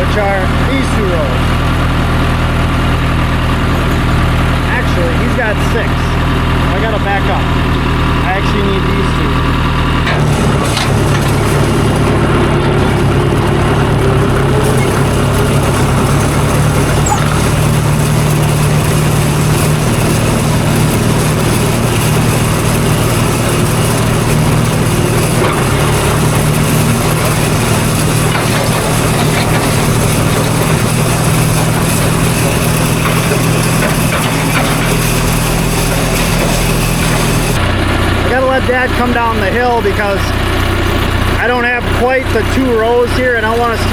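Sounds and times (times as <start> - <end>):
diesel tractor engine running: 0.0 - 43.9.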